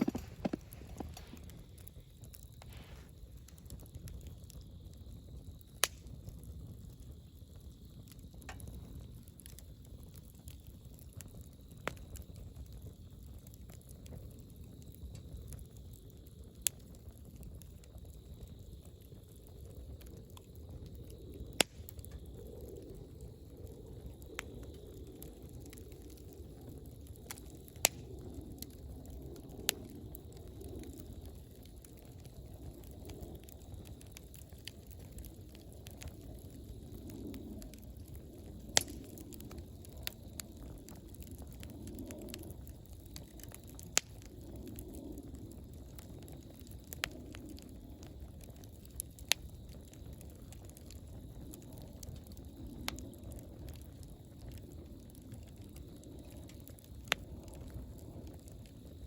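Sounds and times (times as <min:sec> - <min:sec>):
bonfire flames rushing: 0:00.0 - 0:59.0
burning wood popping: 0:00.0 - 0:59.0
fire crackling: 0:00.0 - 0:59.0.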